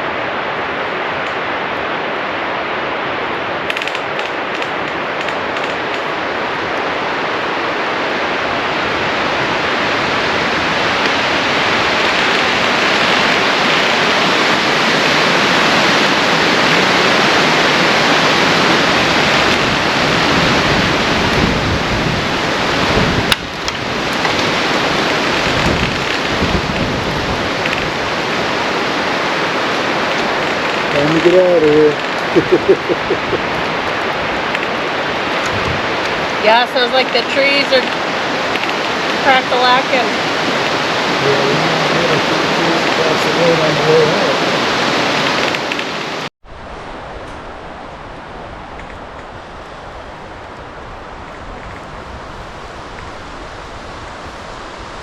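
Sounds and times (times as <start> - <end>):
heavy rain: 0.0 - 55.0
sharp crack: 3.6 - 6.3.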